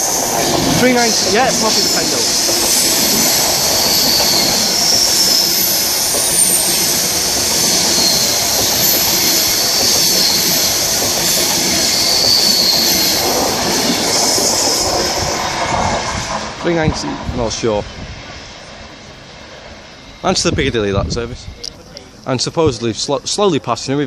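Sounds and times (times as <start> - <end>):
electric train passing: 0.0 - 24.0.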